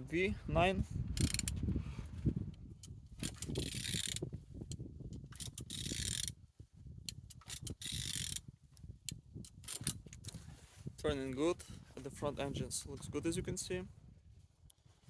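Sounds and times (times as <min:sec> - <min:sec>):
engine crankshaft turned by hand: 0:01.2 - 0:01.5, 0:03.2 - 0:04.2, 0:05.3 - 0:06.3, 0:07.4 - 0:08.4.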